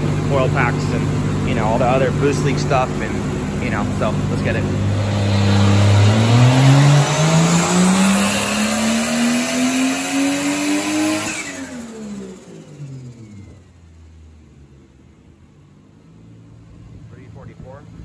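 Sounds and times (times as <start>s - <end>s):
engine revving at full throttle: 0.0s - 13.9s.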